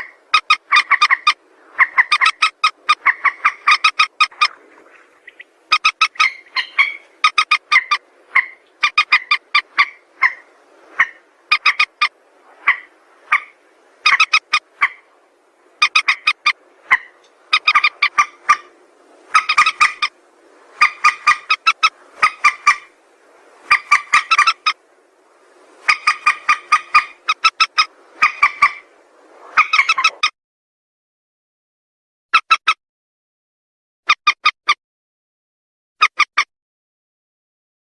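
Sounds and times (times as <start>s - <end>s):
rail bird calling pulsed notes: 0.0s - 4.6s, 5.2s - 15.1s, 15.8s - 18.7s, 25.9s - 28.9s.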